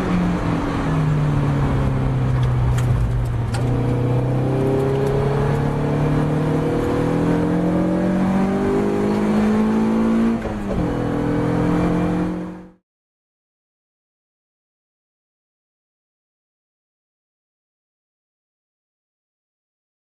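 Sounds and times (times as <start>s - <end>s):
race car engine accelerating: 0.0s - 12.8s.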